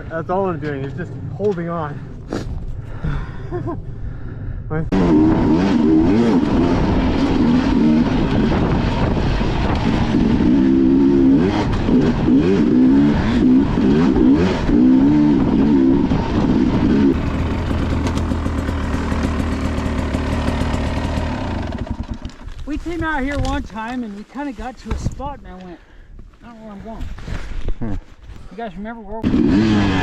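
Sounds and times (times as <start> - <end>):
dirt bike engine revving: 4.9 - 22.4, 29.2 - 30.0.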